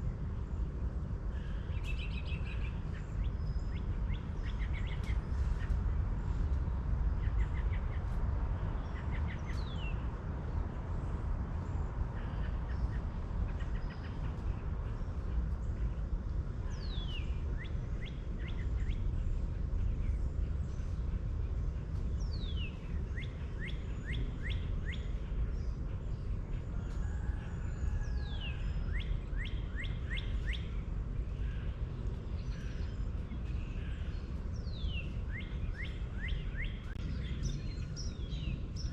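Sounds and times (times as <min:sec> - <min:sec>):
songbird singing: 0:00.0 - 0:38.9
steady low rumble: 0:00.0 - 0:38.9.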